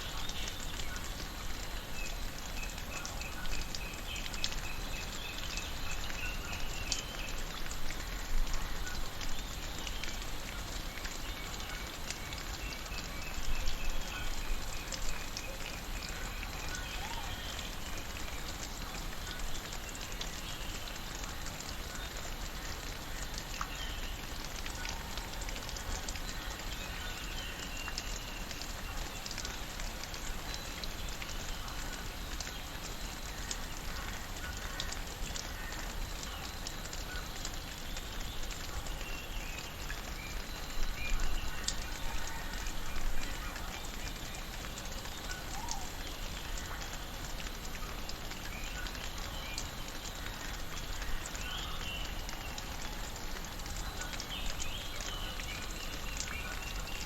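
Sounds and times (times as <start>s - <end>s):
rain hiss: 0.0s - 57.0s
water drips clicking: 0.0s - 57.0s.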